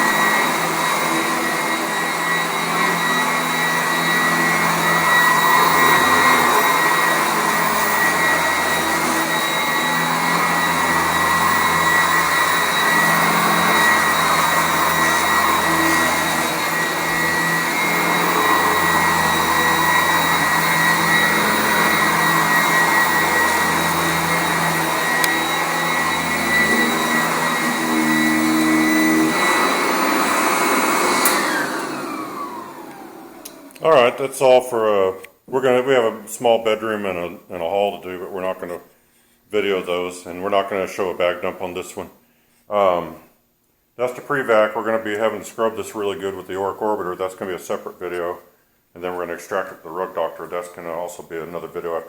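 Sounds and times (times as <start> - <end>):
upright vacuum running on carpet: 0.0 - 34.2
vacuum motor winding down: 0.0 - 34.2.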